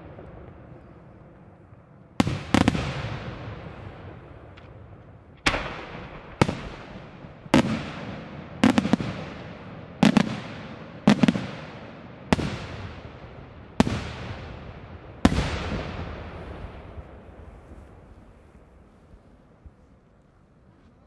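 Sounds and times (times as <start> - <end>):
firework bangs with echo: 2.1 - 18.8.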